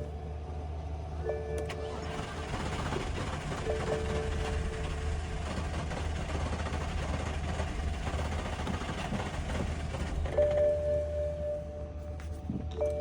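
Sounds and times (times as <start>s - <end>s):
dashboard warning tone: 1.2s - 2.5s, 3.4s - 5.4s, 10.3s - 13.0s
car engine cranking by starter: 1.6s - 10.9s.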